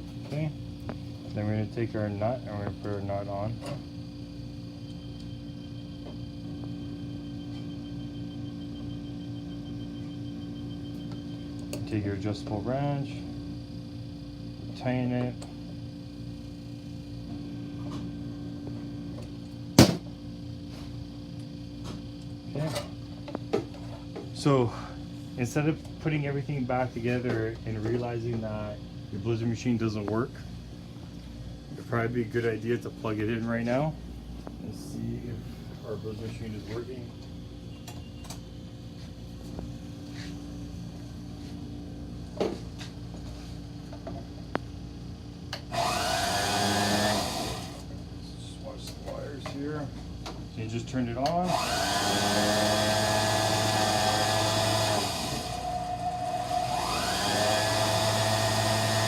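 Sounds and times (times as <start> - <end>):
steady low hum: 0.0 - 59.0
sharp knock of tool: 19.8 - 20.0
mixer motor whining: 45.5 - 48.0, 51.2 - 59.0.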